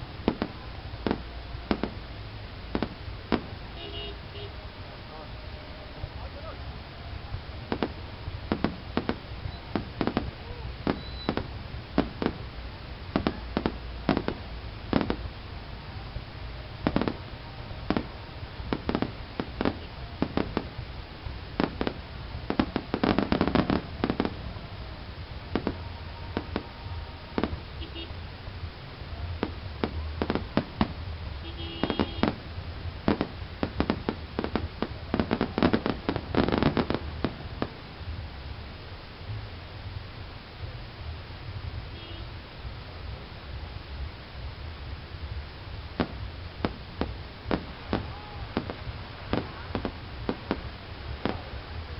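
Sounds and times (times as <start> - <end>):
fireworks bursting in sharp bangs: 0.1 - 2.1, 2.7 - 4.5, 7.6 - 15.3, 16.8 - 24.5, 25.4 - 28.1, 29.2 - 37.9, 45.9 - 51.9.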